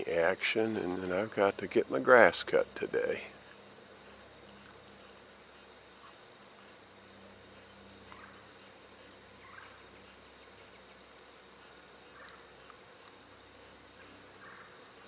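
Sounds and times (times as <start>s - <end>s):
distant rough bird calls: 0.0s - 15.0s
faint high bird chirps: 7.0s - 10.6s.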